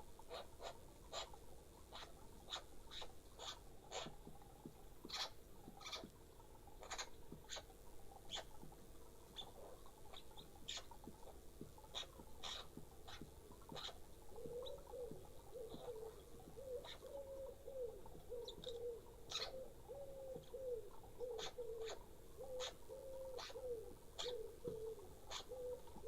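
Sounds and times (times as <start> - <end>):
pigeon cooing: 12.0 - 26.0.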